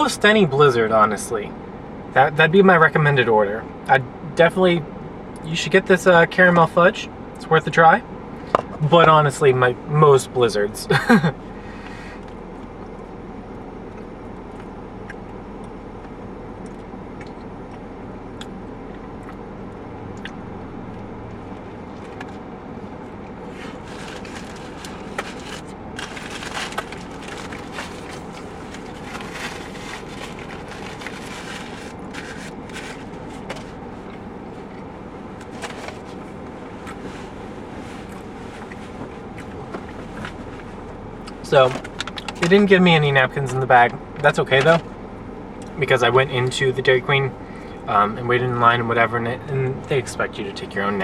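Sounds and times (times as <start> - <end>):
steady background hum: 0.0 - 51.0
paper bag rustling: 23.5 - 34.7, 35.3 - 39.0.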